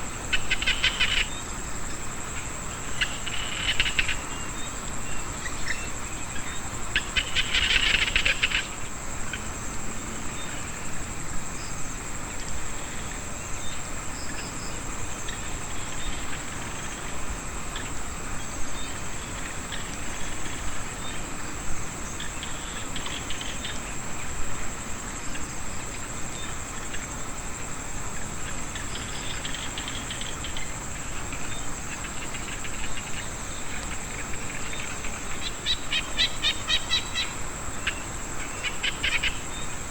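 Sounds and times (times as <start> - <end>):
high-pitched insect trill: 0.0 - 39.9
frogs clicking calls: 0.1 - 10.9, 11.6 - 39.9.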